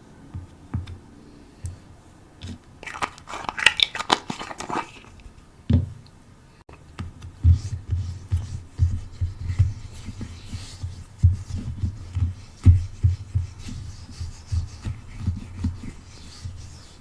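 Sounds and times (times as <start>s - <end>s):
crisp scratching and crinkling: 2.8s - 5.2s.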